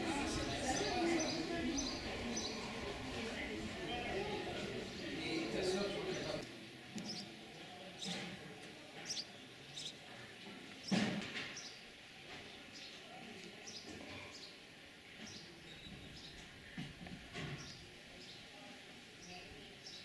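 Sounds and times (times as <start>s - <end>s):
outdoor background noise: 0.0s - 20.0s
small birds chirping: 0.2s - 8.2s, 9.0s - 11.8s, 13.6s - 14.6s, 15.2s - 16.8s, 17.5s - 18.5s, 19.1s - 20.0s.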